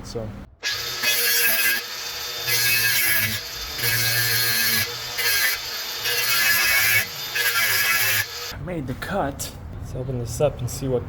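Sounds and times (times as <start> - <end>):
power saw cutting into wall: 0.6 - 8.5.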